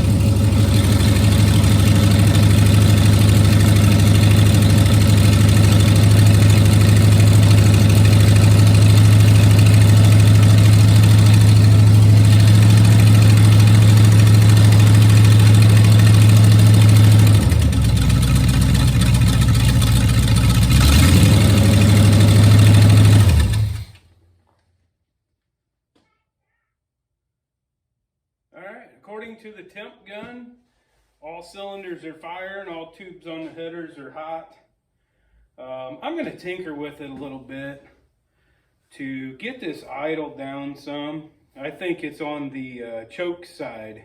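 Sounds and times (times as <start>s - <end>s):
engine idling fast: 0.0s - 24.0s.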